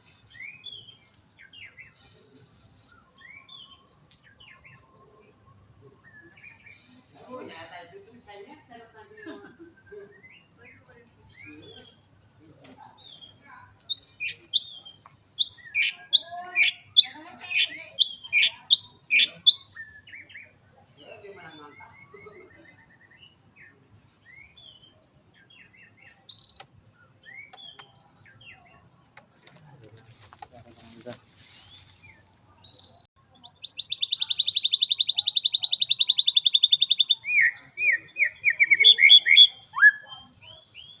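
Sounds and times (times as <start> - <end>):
bird singing sharp repeated notes: 13.1 - 20.5, 22.8 - 28.8, 32.6 - 41.0.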